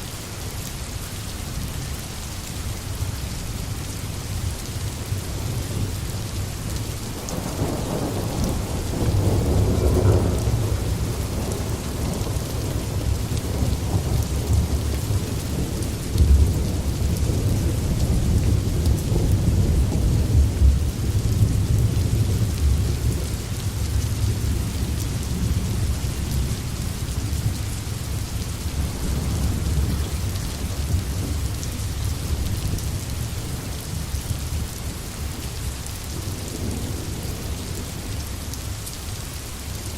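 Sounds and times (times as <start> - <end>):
heavy rain in a forest: 0.0 - 39.9.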